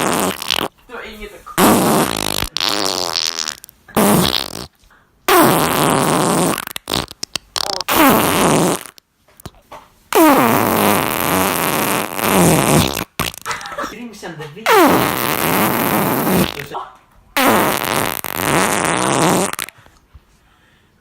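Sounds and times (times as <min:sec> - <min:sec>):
farts: 0:00.0 - 0:00.8, 0:01.6 - 0:13.6, 0:14.7 - 0:16.7, 0:17.4 - 0:19.9.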